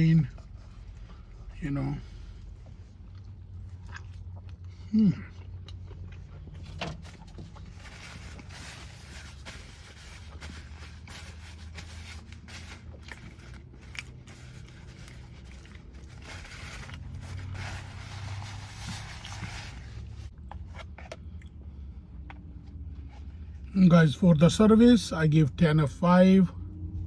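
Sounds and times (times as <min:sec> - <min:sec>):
food tearing and crunching: 0:02.8 - 0:21.5.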